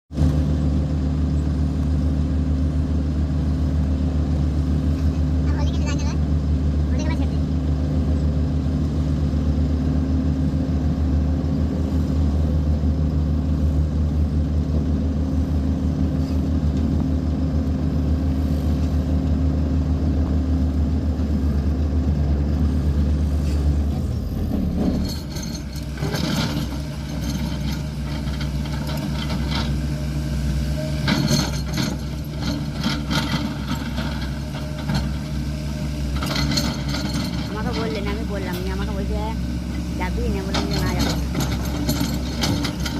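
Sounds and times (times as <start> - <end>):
excavator diesel engine humming: 0.1 - 42.9
clattering and scraping: 24.4 - 29.9, 31.0 - 35.4, 36.1 - 39.3, 40.1 - 42.9.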